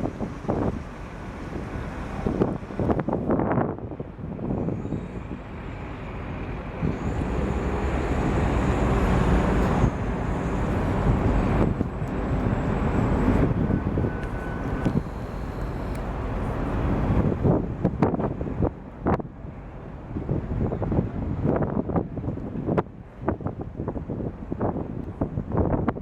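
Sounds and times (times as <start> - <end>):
low rumbling roar: 0.0 - 18.6.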